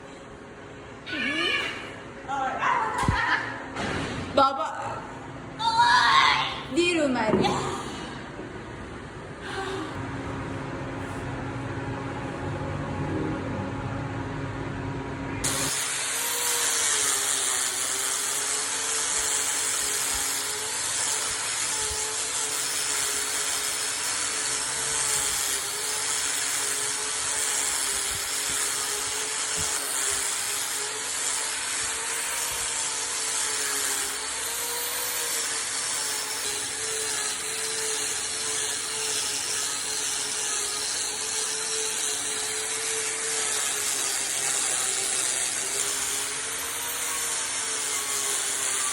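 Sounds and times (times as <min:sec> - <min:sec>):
power tool cutting wood: 0:15.4 - 0:48.9.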